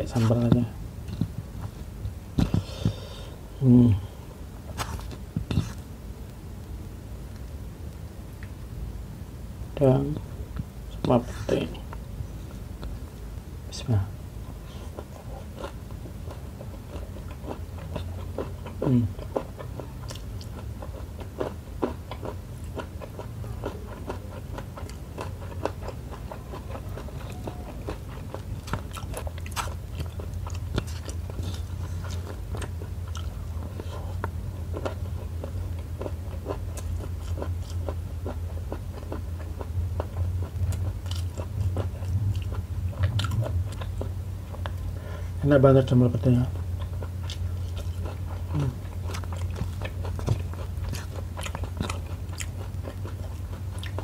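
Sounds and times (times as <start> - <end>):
low steady hum: 0.0 - 54.0
chewing food: 14.4 - 45.0, 46.3 - 54.0.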